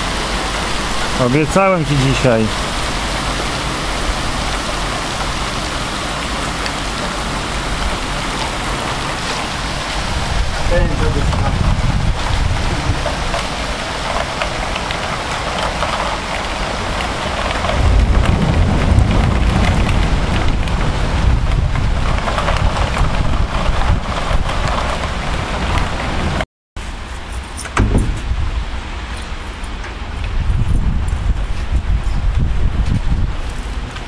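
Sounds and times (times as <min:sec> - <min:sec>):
heavy rain pouring: 0:00.0 - 0:34.0
deep low rumble: 0:17.5 - 0:23.8, 0:27.8 - 0:29.0.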